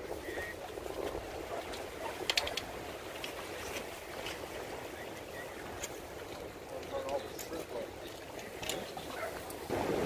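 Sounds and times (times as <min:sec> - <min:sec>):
water washing against rocks: 0:09.2 - 0:10.0.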